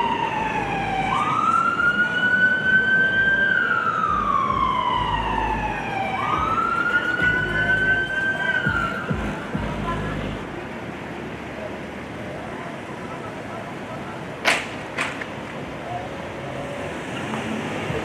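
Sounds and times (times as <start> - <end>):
fire siren wailing: 0.0 - 9.2.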